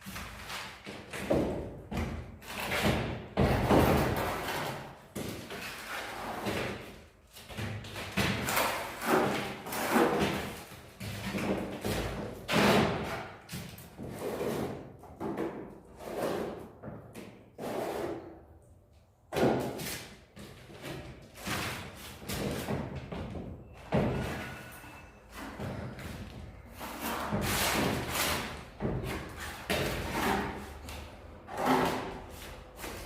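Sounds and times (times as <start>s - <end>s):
plastering tools scraping: 2.4s - 16.8s, 17.6s - 18.4s, 19.6s - 33.0s.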